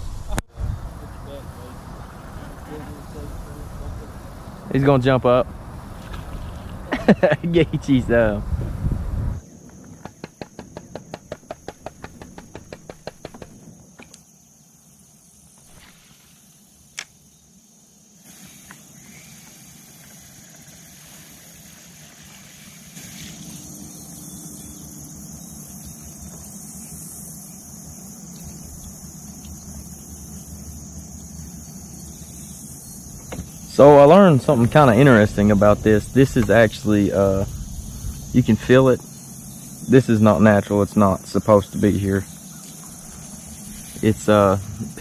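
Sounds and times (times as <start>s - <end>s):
highway traffic rumble: 0.0s - 14.1s, 22.1s - 45.0s
high insect drone: 0.0s - 45.0s
rapid clicks: 10.0s - 14.1s.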